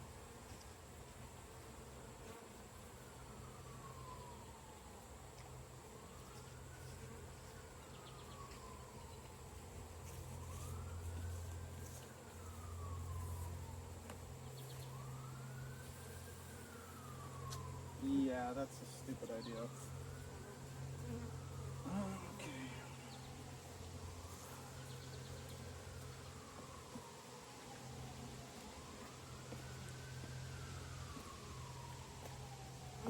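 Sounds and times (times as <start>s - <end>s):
distant siren wailing: 3.0s - 33.0s
bees buzzing: 5.8s - 29.9s.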